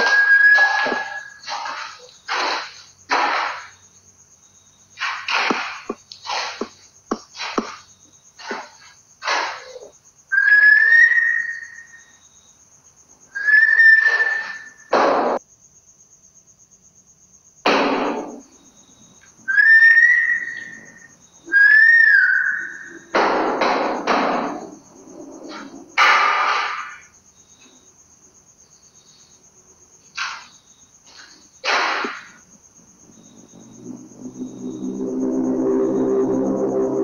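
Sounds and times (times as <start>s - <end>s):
drawn-out whistled notes: 0.0s - 1.4s, 19.5s - 23.1s, 32.9s - 37.0s.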